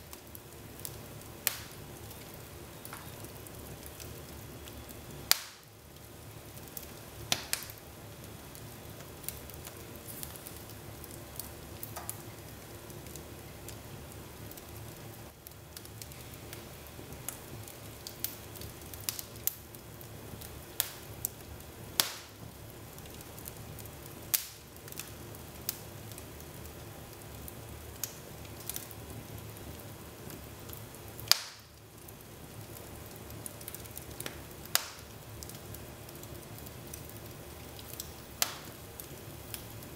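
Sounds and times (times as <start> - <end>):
fire crackling: 0.0 - 39.9
fire hissing and rumbling: 0.0 - 39.9
logs popping: 5.3 - 5.7, 37.8 - 38.8.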